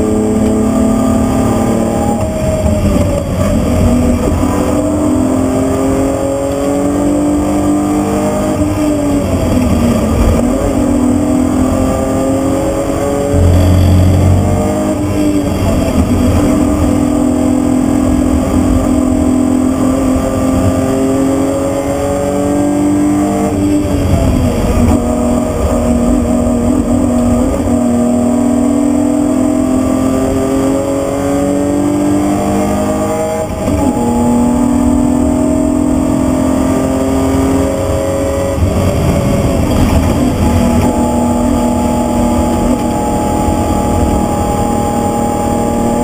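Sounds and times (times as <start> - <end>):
car engine revving: 0.0 - 46.0
tyre and road rumble: 37.4 - 44.3.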